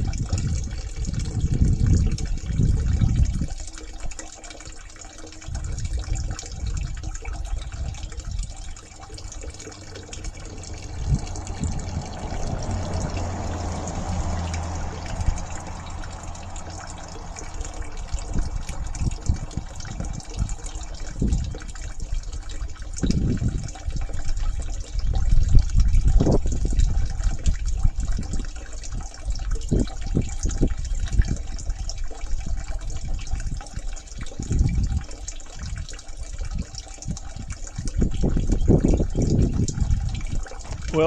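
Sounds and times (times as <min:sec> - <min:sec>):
water running and trickling: 0:00.0 - 0:41.0
low rumbles: 0:05.5 - 0:33.2, 0:38.0 - 0:41.0.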